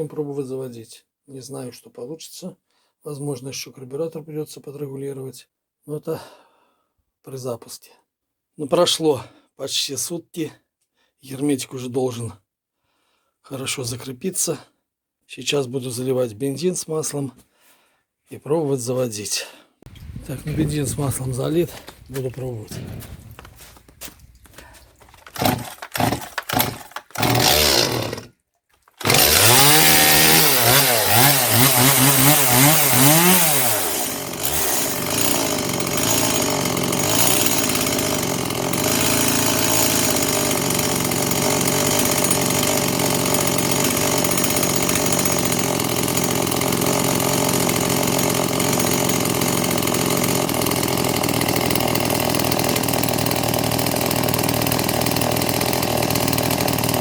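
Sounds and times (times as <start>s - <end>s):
chainsaw engine revving: 19.9s - 28.3s, 29.0s - 57.0s
chainsaw pull-start bursts: 19.9s - 57.0s.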